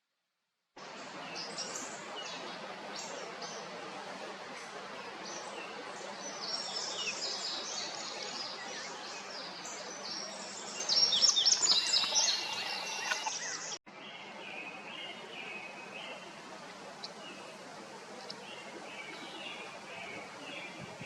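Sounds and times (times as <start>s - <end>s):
steady outdoor hiss: 0.8s - 21.0s
birds chirping and trilling: 5.0s - 16.4s.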